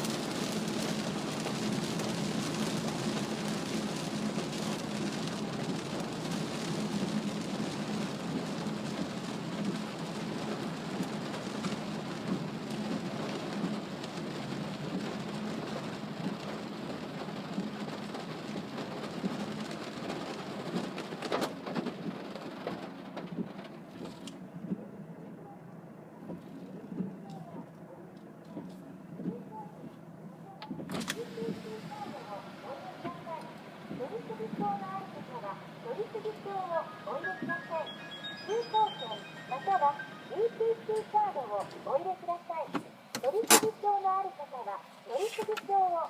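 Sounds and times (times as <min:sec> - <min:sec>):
heavy rain: 0:00.0 - 0:24.3, 0:29.5 - 0:42.1
tyre noise on wet road: 0:00.0 - 0:24.4.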